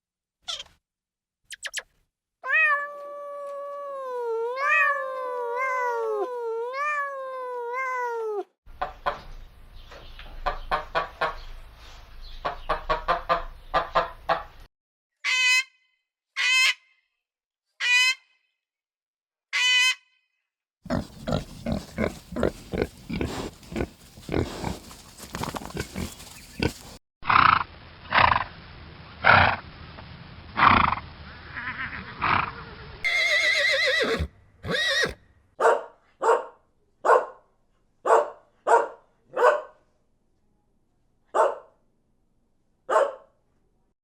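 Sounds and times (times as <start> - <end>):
farm animal calls: 20.9 - 27.5
horse whinny: 33.0 - 35.2.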